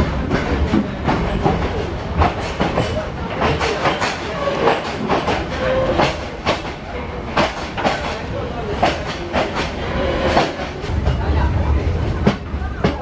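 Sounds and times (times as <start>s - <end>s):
train rumbling on track: 0.0s - 13.0s.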